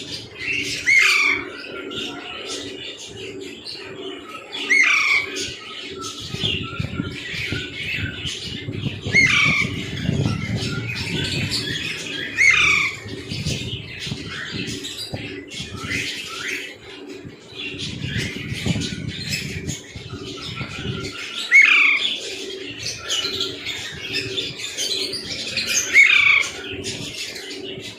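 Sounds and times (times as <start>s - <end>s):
parrot squawking: 0.6s - 2.4s, 4.5s - 5.5s, 8.9s - 14.7s, 20.3s - 26.6s.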